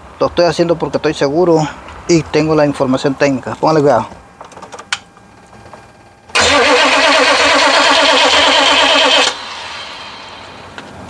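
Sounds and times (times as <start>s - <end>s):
starter cranking diesel engine: 6.3s - 10.6s.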